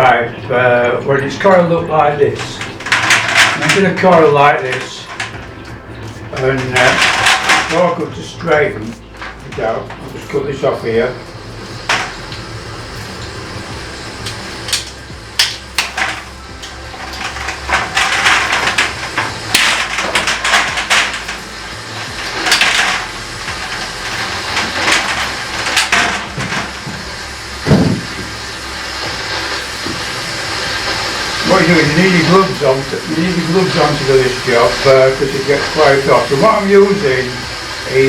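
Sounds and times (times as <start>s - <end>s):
plastic pipe and tools handled: 17.1s - 28.4s.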